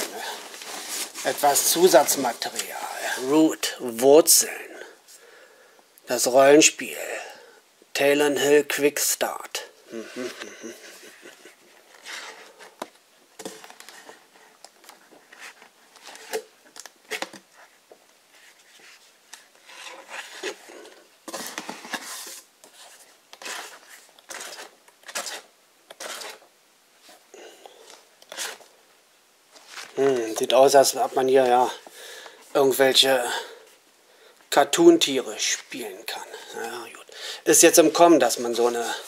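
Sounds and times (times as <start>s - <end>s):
pages being flipped: 11.2s - 26.5s, 27.8s - 28.7s, 29.5s - 31.2s.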